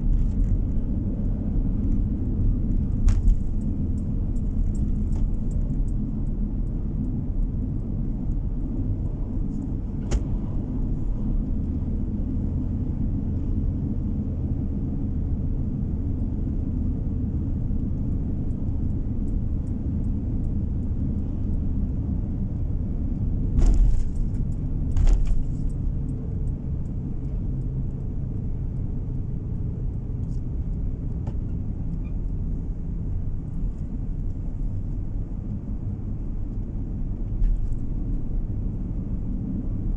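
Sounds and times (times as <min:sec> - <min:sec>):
car road noise rumble: 0:00.0 - 0:39.9
heavy thumps: 0:23.6 - 0:25.8.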